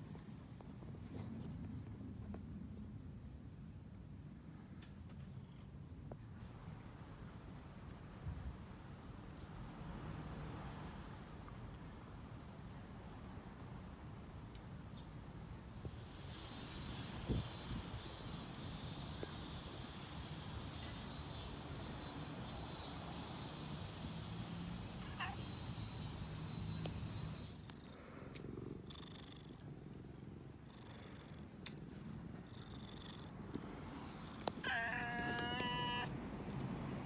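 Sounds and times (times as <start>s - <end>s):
steady high hiss: 15.6s - 27.8s
cat purring: 15.8s - 27.7s, 34.6s - 36.1s
faint clicks: 34.4s - 36.7s.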